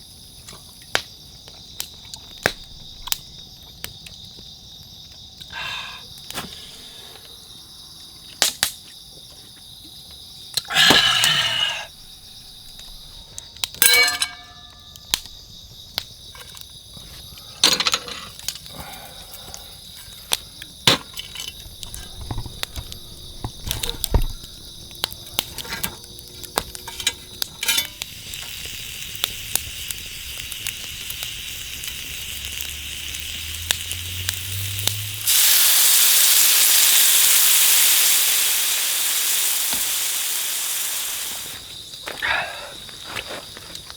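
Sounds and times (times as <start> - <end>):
insects chirring: 0.0 - 43.9
hiss: 5.5 - 7.4, 10.7 - 13.3, 27.7 - 43.2
cooking gear clicking: 20.6 - 29.6
short sizzles: 26.9 - 41.7.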